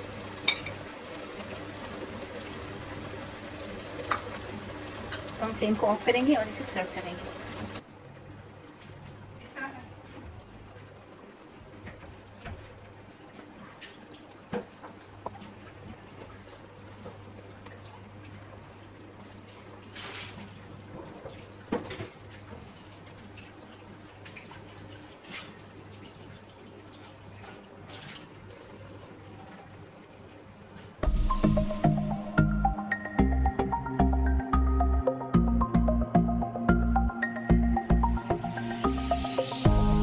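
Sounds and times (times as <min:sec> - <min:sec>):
low hum: 0:31.0 - 0:40.0.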